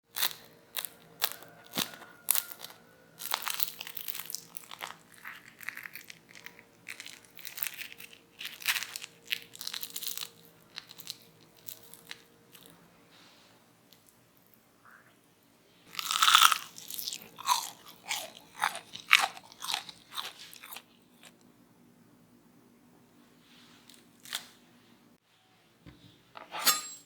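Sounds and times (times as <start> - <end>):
crunching crisp snacks: 0.1 - 12.8, 15.9 - 21.4.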